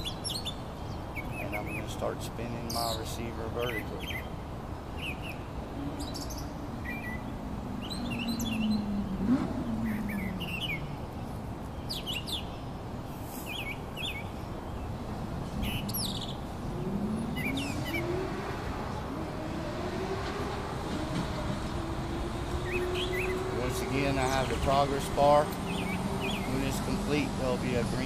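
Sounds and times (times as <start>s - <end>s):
small birds chirping: 0.0s - 19.5s, 20.8s - 28.0s
low outdoor hum: 0.0s - 28.0s
low droning engine: 5.7s - 11.6s, 15.0s - 28.0s.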